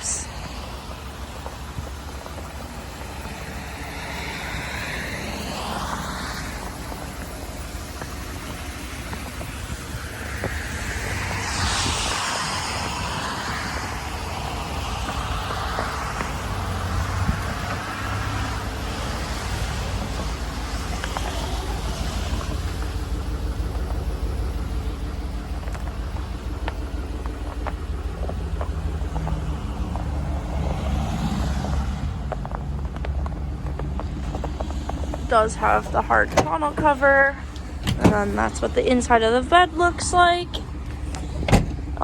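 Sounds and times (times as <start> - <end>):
road traffic passing: 0.0 - 42.0.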